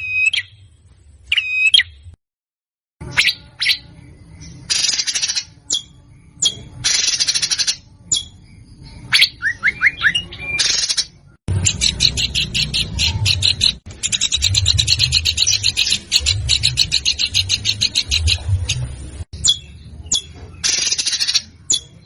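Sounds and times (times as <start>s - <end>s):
songbird harsh song: 0.0s - 2.1s, 3.0s - 22.0s
bird fast repeated notes: 3.0s - 22.0s.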